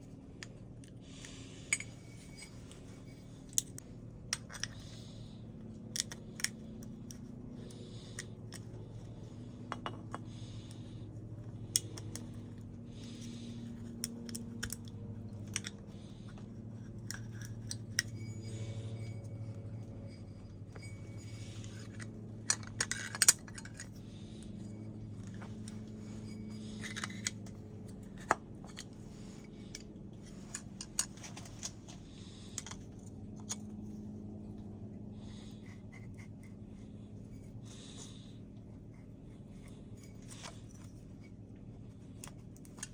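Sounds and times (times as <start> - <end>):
low steady hum: 0.0 - 42.9
metal parts clicking and clinking: 0.4 - 5.2, 5.9 - 33.7, 42.1 - 42.9.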